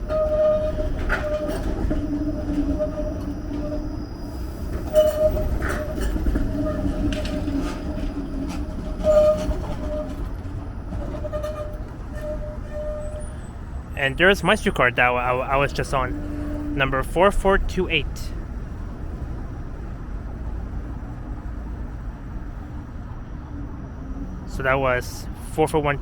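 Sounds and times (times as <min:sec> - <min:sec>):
wheels knocking over rail joints: 0:00.0 - 0:03.9, 0:04.6 - 0:13.2
streetcar electric whine: 0:00.0 - 0:26.0.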